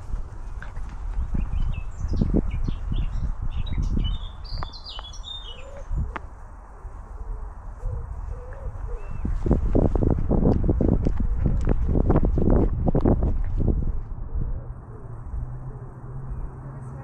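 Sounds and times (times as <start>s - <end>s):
thumps and rustling on microphone: 0.0s - 2.6s, 7.8s - 14.2s
wind on microphone: 0.0s - 17.0s
songbird chirping: 0.6s - 6.8s, 14.8s - 17.0s.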